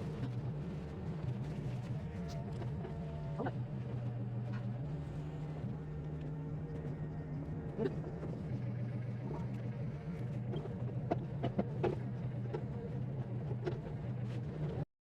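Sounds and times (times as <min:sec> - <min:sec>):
engine running at low speed: 0:00.0 - 0:14.9.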